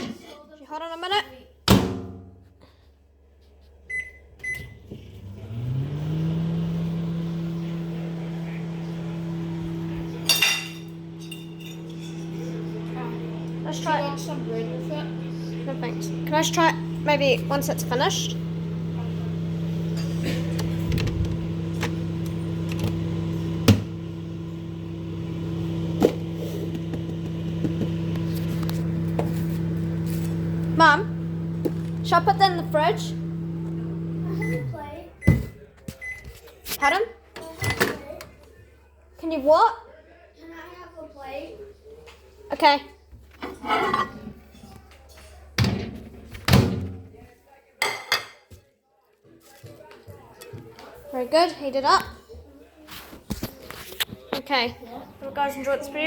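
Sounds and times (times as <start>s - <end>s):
microwave oven humming: 3.9s - 36.2s.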